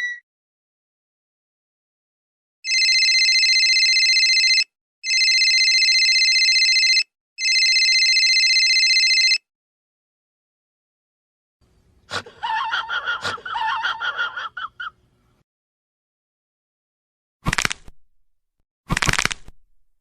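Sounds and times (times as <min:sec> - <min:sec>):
telephone ringing: 0:02.6 - 0:09.5.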